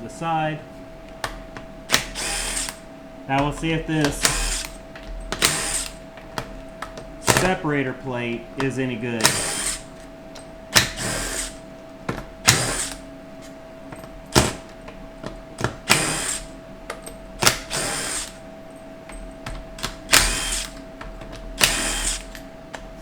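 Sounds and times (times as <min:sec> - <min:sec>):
power tool bursts: 0:01.9 - 0:06.0, 0:07.2 - 0:07.6, 0:09.2 - 0:09.9, 0:10.7 - 0:11.6, 0:12.4 - 0:13.0, 0:14.3 - 0:14.7, 0:15.8 - 0:16.6, 0:17.4 - 0:18.4, 0:19.8 - 0:20.8, 0:21.6 - 0:22.4.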